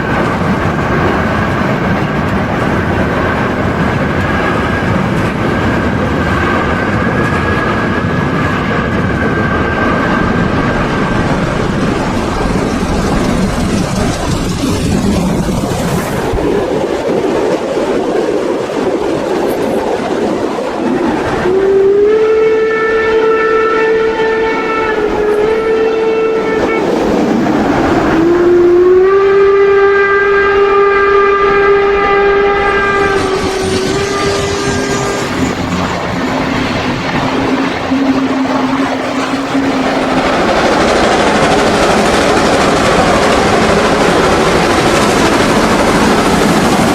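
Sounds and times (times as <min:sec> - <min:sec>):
steam whistle blasts: 0:21.4 - 0:35.5, 0:37.4 - 0:40.9.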